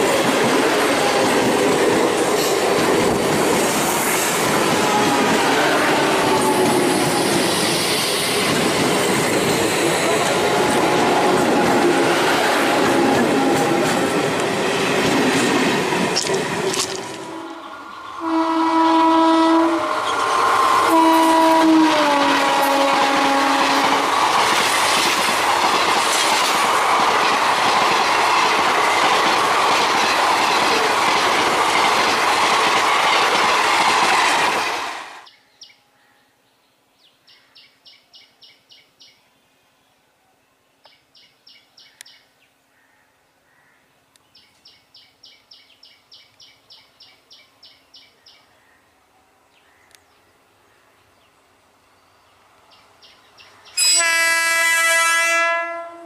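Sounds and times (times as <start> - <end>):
train wheels on track: 0.0 - 35.3
locomotive horn: 4.7 - 7.4, 17.0 - 24.1, 53.8 - 56.0.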